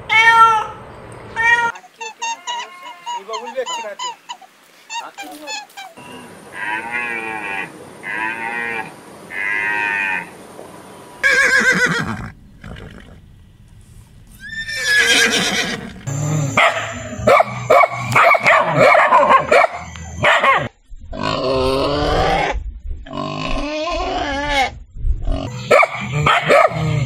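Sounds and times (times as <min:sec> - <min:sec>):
horse neighing: 0:11.2 - 0:13.2, 0:14.3 - 0:17.3
dog barking: 0:16.6 - 0:20.7, 0:25.6 - 0:26.9.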